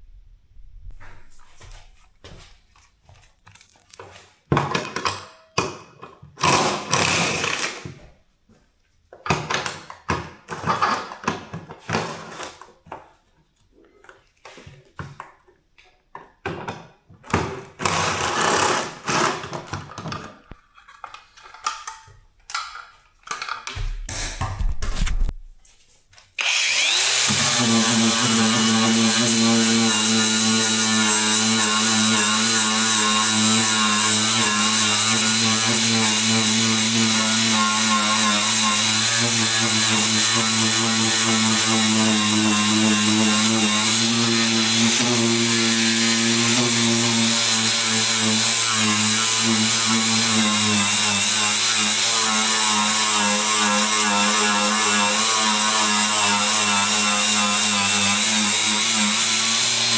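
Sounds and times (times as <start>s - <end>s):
handheld power tool bursts: 6.4s - 7.9s, 26.4s - 52.2s.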